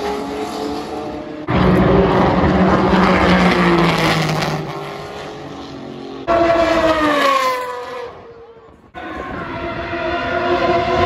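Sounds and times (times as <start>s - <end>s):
sports cars passing at speed: 0.0s - 11.0s.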